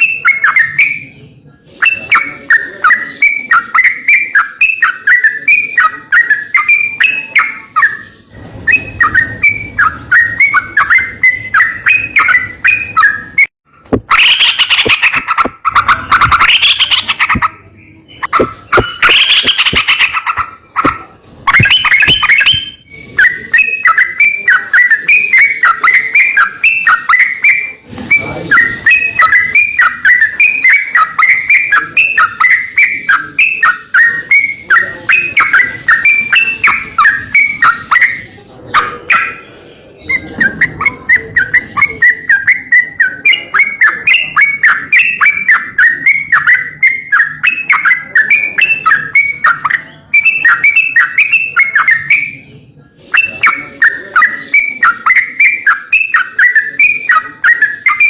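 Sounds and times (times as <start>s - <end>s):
harsh scratchy bird calls: 0.0s - 58.0s
songbird chirping song: 0.0s - 58.0s.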